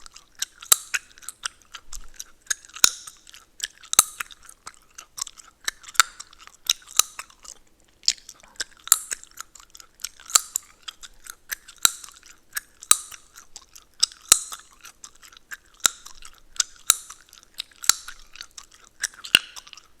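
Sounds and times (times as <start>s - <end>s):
gum chewing: 0.0s - 20.0s
gum cracking: 0.0s - 20.0s.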